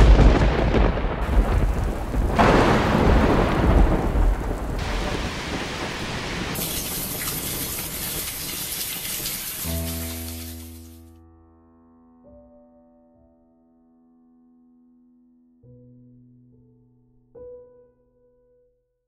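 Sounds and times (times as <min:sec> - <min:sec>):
thunder rumbling: 0:00.0 - 0:08.8
heavy rain: 0:00.0 - 0:11.0.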